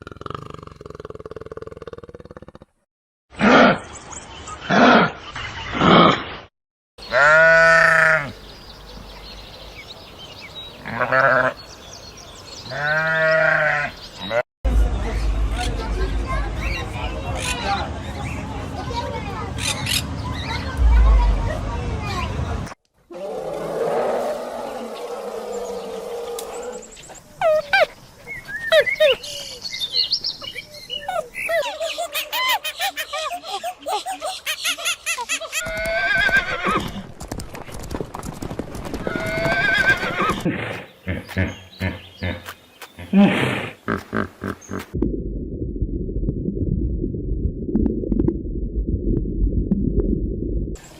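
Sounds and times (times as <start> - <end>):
birds chirping: 7.0 - 22.6, 23.3 - 35.1, 39.3 - 45.0
sheep or goat bleating: 7.1 - 8.3, 12.7 - 14.4
steady noise: 20.8 - 22.7
animal roaring: 23.1 - 26.9.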